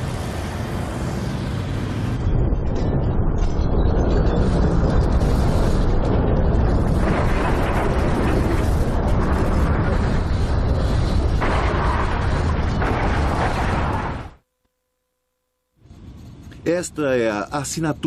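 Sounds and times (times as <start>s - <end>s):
deep rumble with rough roar: 0.0s - 14.4s.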